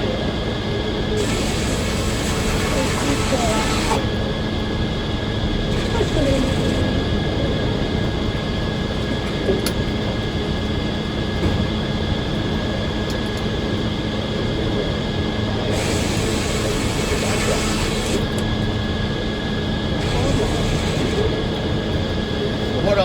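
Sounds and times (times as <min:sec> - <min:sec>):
sawmill machine noise: 0:01.1 - 0:04.3, 0:05.4 - 0:07.2, 0:15.6 - 0:18.6, 0:19.2 - 0:23.0.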